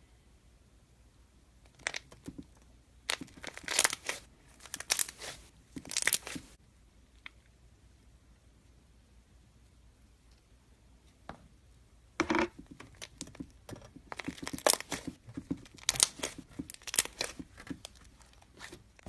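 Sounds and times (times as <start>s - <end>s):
slime crackling and tearing: 3.1s - 6.5s, 14.1s - 18.8s.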